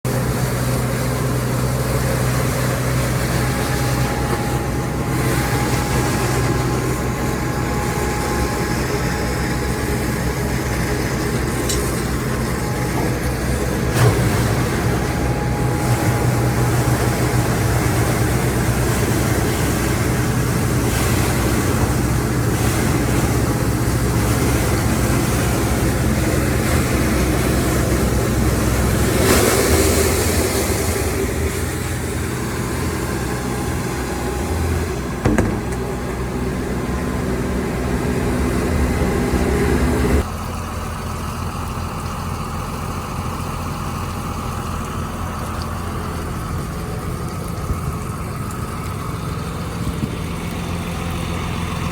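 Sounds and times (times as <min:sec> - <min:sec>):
diesel engine running: 0:00.0 - 0:51.9
sharp knock: 0:35.2 - 0:35.8.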